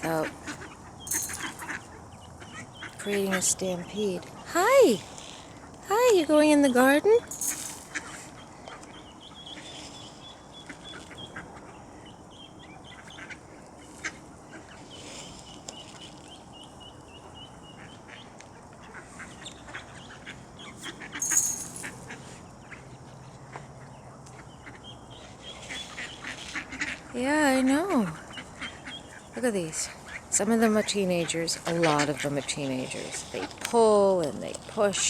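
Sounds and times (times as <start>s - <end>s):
ducks quacking: 0.0s - 4.2s, 17.6s - 34.0s
bills pecking and rustling: 0.0s - 35.0s.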